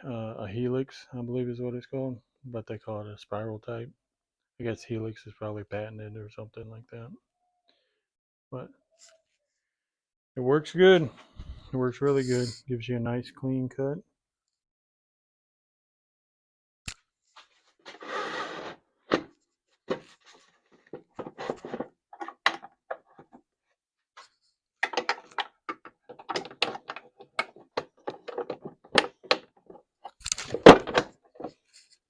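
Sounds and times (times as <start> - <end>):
irregular clicks and knocks: 24.8 - 31.7.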